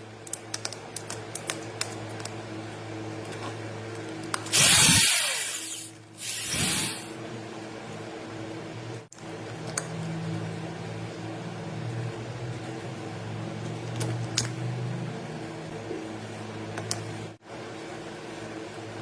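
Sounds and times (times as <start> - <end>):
small electric motor humming: 4.5 - 7.1
loud hissing rush: 4.5 - 7.2.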